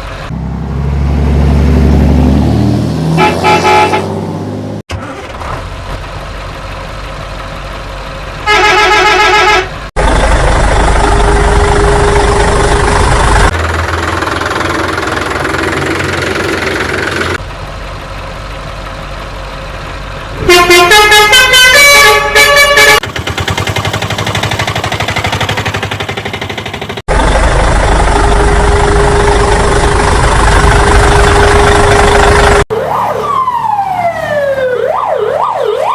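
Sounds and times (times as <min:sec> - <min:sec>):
heavy vehicle engine: 0:00.0 - 0:33.0
truck horn blast: 0:03.1 - 0:04.3, 0:08.4 - 0:09.8, 0:11.0 - 0:13.1, 0:20.4 - 0:23.0, 0:28.1 - 0:32.6
musical horn notes: 0:03.2 - 0:04.1, 0:20.4 - 0:23.0.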